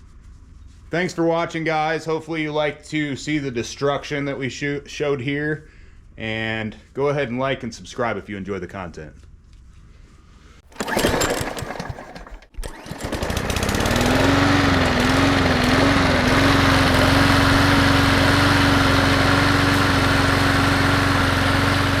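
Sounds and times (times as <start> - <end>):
small gasoline engine running: 10.7 - 22.0.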